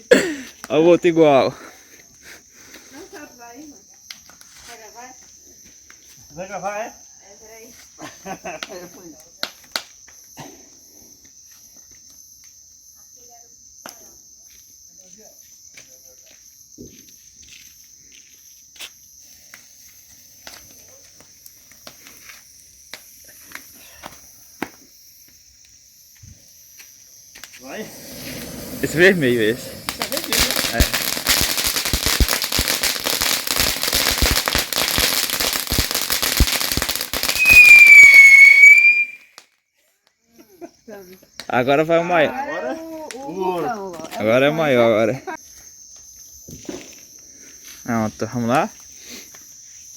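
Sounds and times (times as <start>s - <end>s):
crickets chirping: 0.0s - 49.9s
firework crackling: 27.3s - 39.5s
firework whistle: 27.4s - 39.5s.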